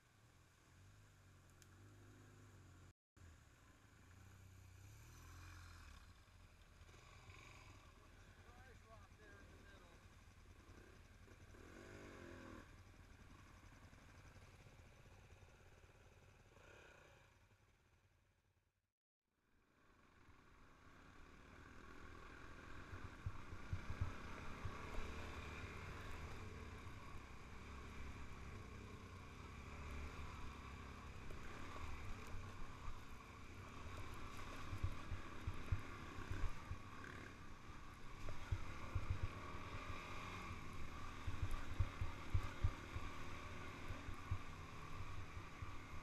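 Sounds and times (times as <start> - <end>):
steady rushing noise: 31.8 - 46.0.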